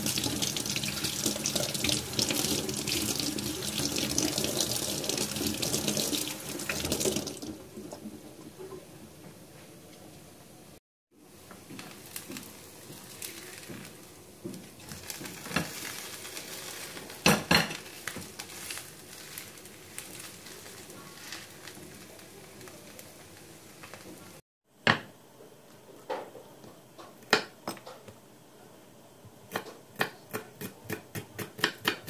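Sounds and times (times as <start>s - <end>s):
food sizzling in a pan: 0.0s - 7.5s, 11.4s - 24.4s.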